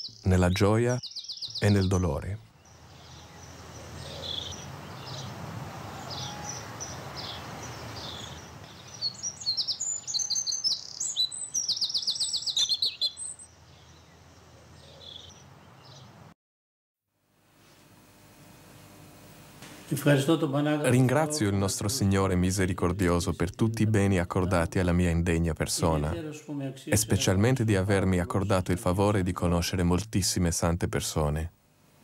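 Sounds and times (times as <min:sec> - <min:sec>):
bird trill: 0:00.0 - 0:16.1
birds chirping: 0:00.0 - 0:16.3
low background noise: 0:00.0 - 0:16.3, 0:17.3 - 0:32.0.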